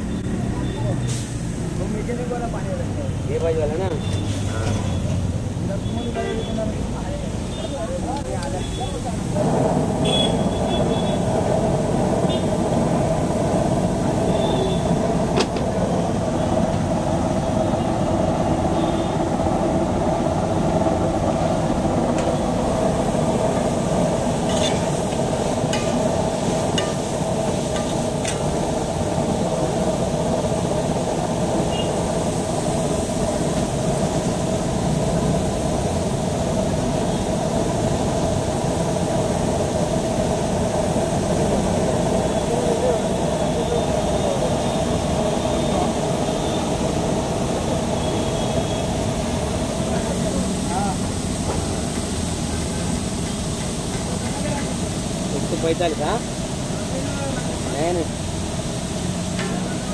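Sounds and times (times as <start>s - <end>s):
vegetables frying on griddle: 0.0s - 59.9s.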